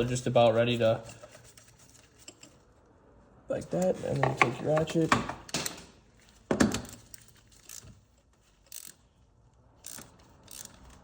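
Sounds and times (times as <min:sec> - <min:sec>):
ratchet clicking: 0:07.5 - 0:07.8, 0:08.6 - 0:09.1, 0:09.8 - 0:11.0.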